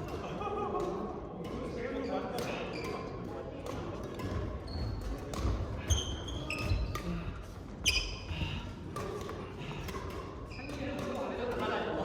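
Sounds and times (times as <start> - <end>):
court shoes squeaking: 1.6 - 9.6, 10.5 - 11.8
racket striking shuttlecock: 2.4 - 5.7.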